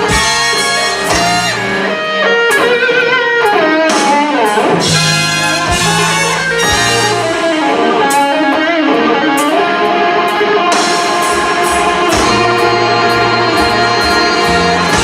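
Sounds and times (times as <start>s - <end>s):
blues band playing: 0.0s - 15.0s
electric guitar lead: 0.0s - 15.0s.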